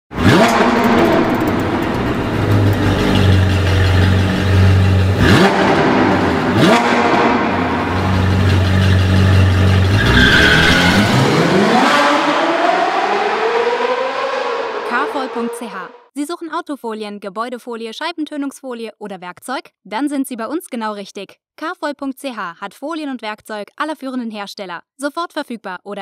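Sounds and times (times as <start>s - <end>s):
sports car engine revving: 0.1s - 16.0s.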